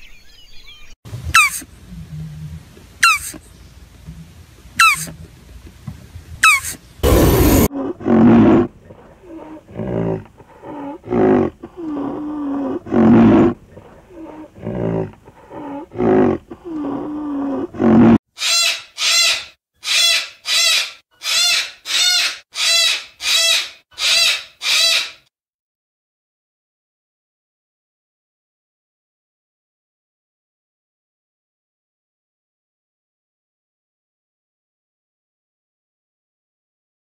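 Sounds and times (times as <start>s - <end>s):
low drawn-out animal calls: 1.2s - 3.5s, 4.1s - 5.2s, 6.4s - 18.6s
loud animal call burst: 1.3s - 1.7s, 3.0s - 3.4s, 6.4s - 7.7s
cockatoos screeching: 1.4s - 1.6s, 3.0s - 3.4s, 4.8s - 5.1s, 6.4s - 7.7s, 18.4s - 25.2s.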